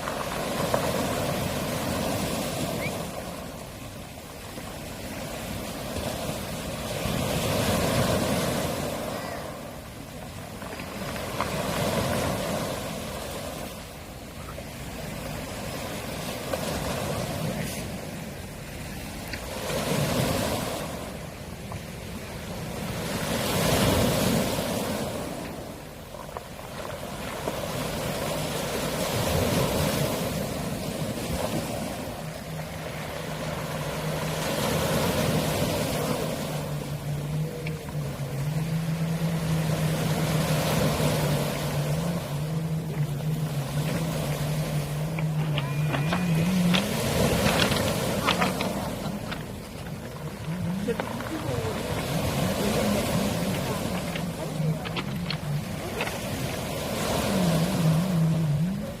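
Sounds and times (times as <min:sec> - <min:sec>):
low motor hum: 0:00.0 - 0:59.0
waves washing up pebble beach: 0:00.0 - 0:59.0
pebbles rolling and clicking: 0:45.0 - 0:51.3, 0:53.4 - 0:56.5.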